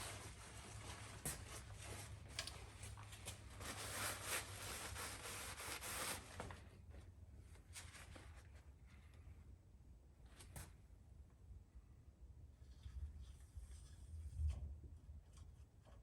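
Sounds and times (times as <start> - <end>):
rubbing and rustling handling: 0.0 - 8.7.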